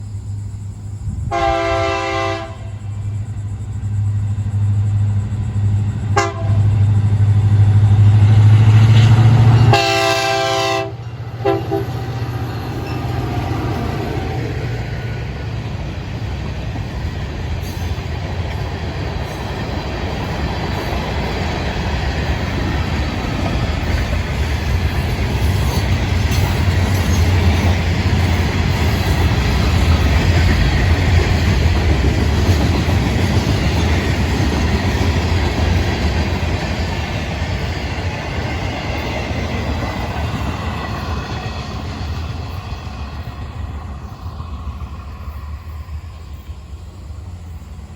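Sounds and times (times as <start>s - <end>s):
diesel locomotive engine drone: 0.0s - 47.9s
train air horn blasts: 1.3s - 2.8s, 6.2s - 6.7s, 9.1s - 12.1s
freight cars rumbling and clattering: 11.2s - 47.9s.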